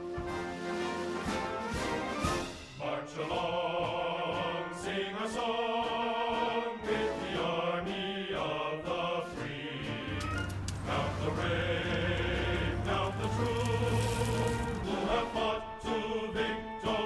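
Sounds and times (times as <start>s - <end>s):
background music sustained chords: 10.1s - 17.0s.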